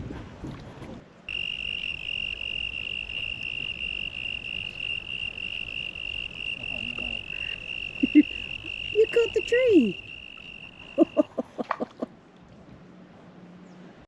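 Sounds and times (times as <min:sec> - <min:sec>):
insects trilling: 0:01.3 - 0:11.4.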